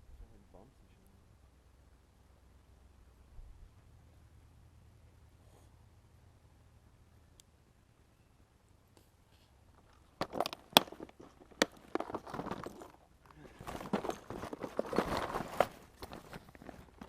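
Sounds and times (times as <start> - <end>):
rustling handling noise: 9.4 - 17.0
sharp knocks and crunching: 9.8 - 17.0.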